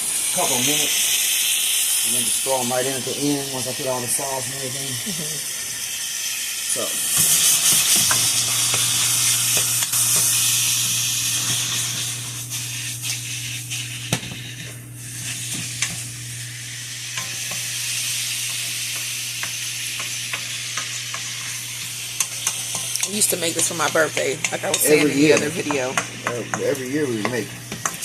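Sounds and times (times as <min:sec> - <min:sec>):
chicken sizzling in a pan: 0:00.0 - 0:28.0
steady low hum: 0:00.0 - 0:28.0
utensil clicking against pan: 0:22.2 - 0:24.6, 0:26.0 - 0:28.0.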